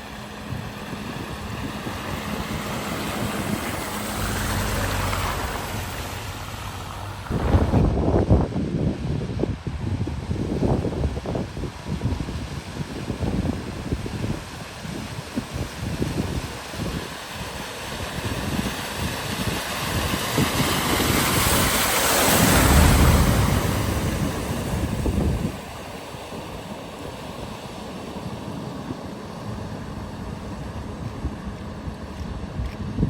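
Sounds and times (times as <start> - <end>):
rushing water: 0.0 - 32.8
vehicle spraying through floodwater: 0.0 - 33.0
wind: 0.0 - 33.0.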